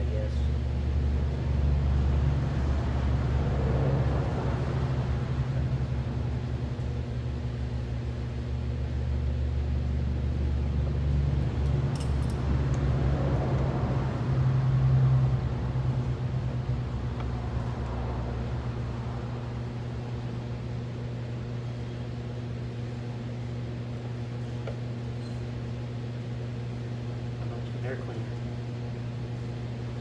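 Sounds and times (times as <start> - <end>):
machine electrical hum: 0.0 - 30.0
light metallic clinks: 11.6 - 12.4.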